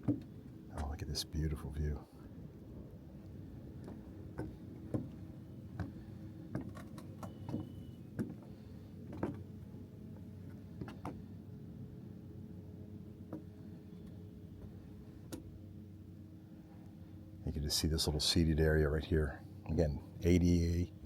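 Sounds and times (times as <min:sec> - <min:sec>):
steady low background noise: 0:00.0 - 0:06.5, 0:07.3 - 0:21.0
footsteps on wooden boardwalk: 0:03.8 - 0:06.7.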